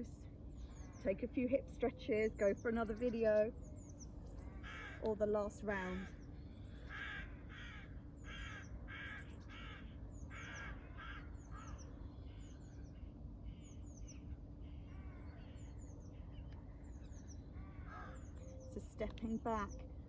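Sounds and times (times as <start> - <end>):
songbird chirping: 0.0 - 7.2, 8.1 - 20.0
crow cawing: 4.4 - 5.1, 6.8 - 12.5, 14.6 - 15.6, 17.6 - 18.3.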